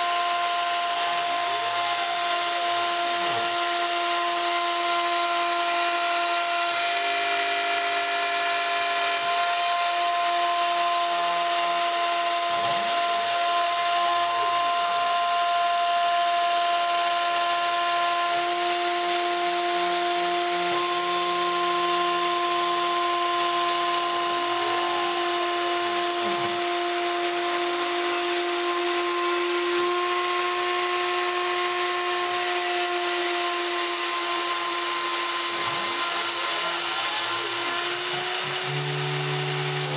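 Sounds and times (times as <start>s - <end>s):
cnc spindle high-pitched whine: 0.0s - 39.9s
motors rising and falling tones: 22.5s - 28.2s.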